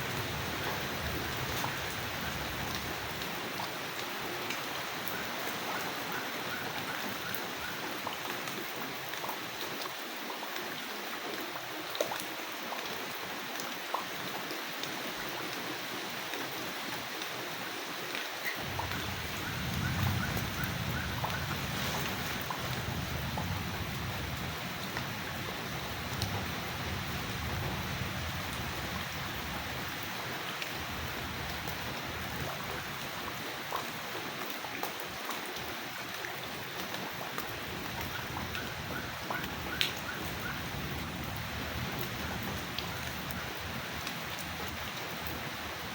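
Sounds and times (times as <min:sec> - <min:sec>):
steady rain falling: 0:00.0 - 0:45.9
low rumble: 0:18.6 - 0:24.6.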